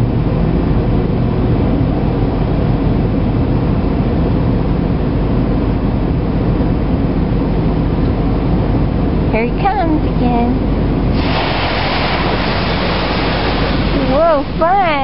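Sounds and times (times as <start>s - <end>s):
low hum: 0.0s - 15.0s
car wash spraying and scrubbing: 11.1s - 15.0s.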